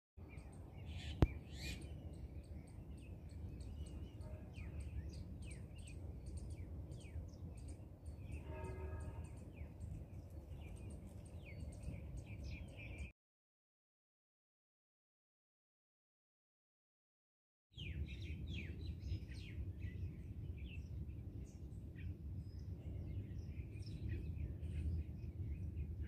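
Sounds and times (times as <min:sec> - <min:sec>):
small birds chirping: 0:00.2 - 0:13.1.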